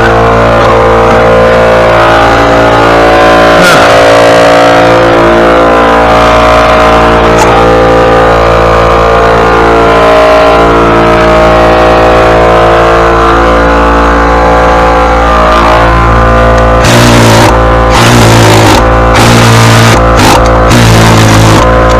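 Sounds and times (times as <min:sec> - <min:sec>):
small gasoline engine running: 0:01.8 - 0:08.3, 0:15.5 - 0:21.9.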